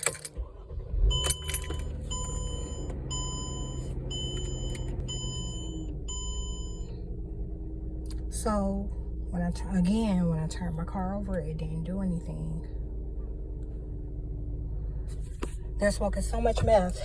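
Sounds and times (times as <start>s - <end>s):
keys jangling in ignition: 0.0s - 2.5s
low steady hum: 0.0s - 17.0s
car warning chime beeping: 1.1s - 6.9s.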